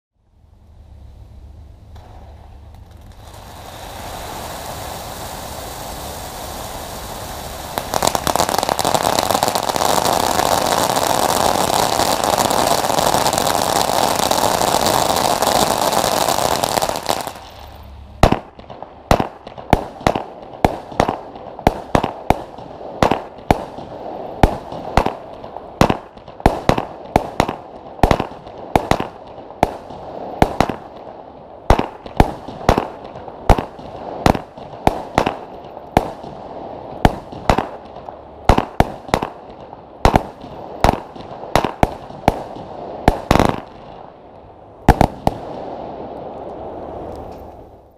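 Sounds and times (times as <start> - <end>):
firework fountain spraying sparks: 2.0 - 30.9.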